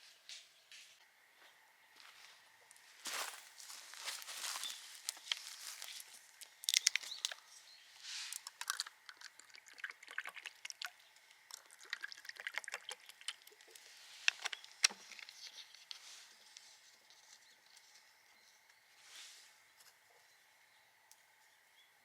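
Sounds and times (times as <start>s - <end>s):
rustling: 3.1s - 6.3s.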